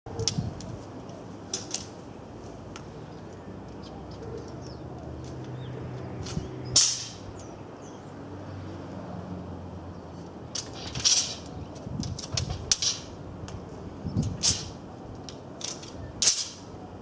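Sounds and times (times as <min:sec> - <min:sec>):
small birds chirping: 0:02.1 - 0:08.8.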